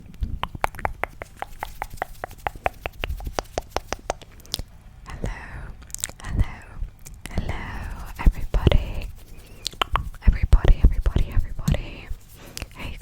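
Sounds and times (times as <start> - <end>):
wet mouth clicks: 0.2 - 11.8
person whispering: 5.0 - 13.0.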